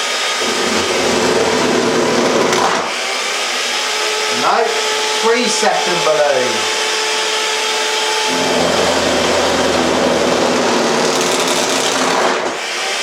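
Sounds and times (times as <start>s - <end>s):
electric mixer whirring: 0.0s - 13.0s.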